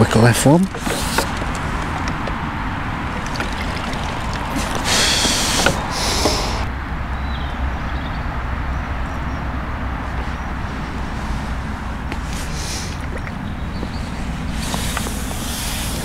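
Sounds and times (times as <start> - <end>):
low outdoor rumble: 0.0 - 8.1.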